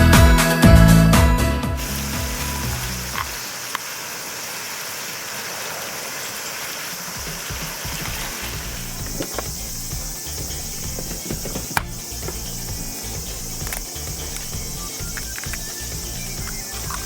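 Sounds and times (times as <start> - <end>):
electronic background music: 0.0 - 3.4, 7.2 - 17.0
insects chirping: 1.8 - 17.0.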